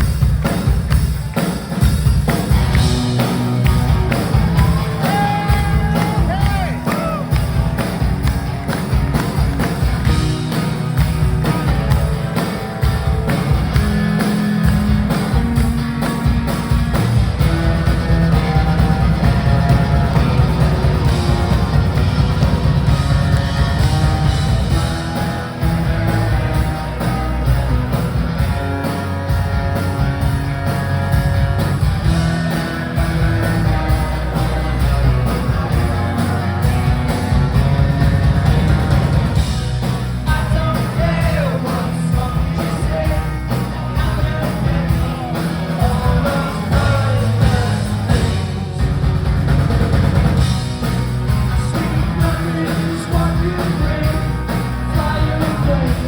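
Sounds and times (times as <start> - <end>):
rock band playing live: 0.0 - 56.0
person singing: 4.7 - 7.4, 51.4 - 56.0.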